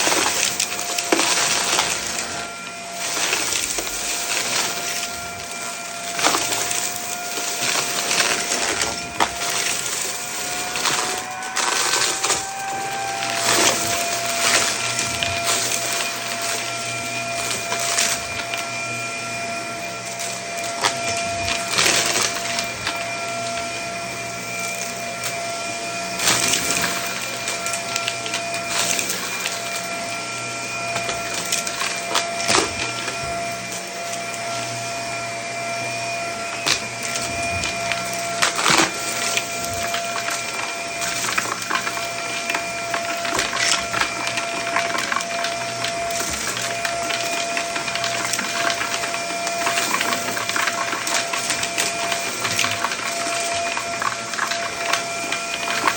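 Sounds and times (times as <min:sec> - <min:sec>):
debris rattling into nozzle: 0:00.0 - 0:18.8, 0:26.1 - 0:30.0, 0:36.4 - 0:55.9
vacuum cleaner whining: 0:00.0 - 0:55.9.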